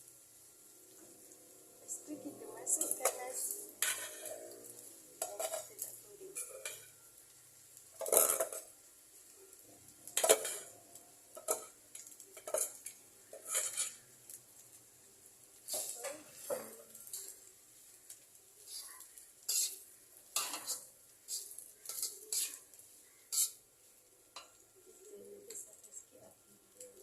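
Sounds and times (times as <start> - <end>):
metal utensil scraping cookware: 2.7 - 7.0, 8.0 - 8.7, 10.1 - 14.1, 18.7 - 23.6.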